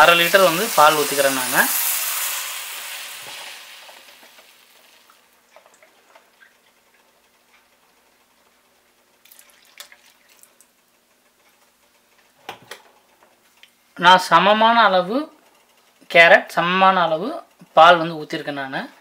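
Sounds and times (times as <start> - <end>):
carrots sizzling in a pan: 0.0 - 5.5.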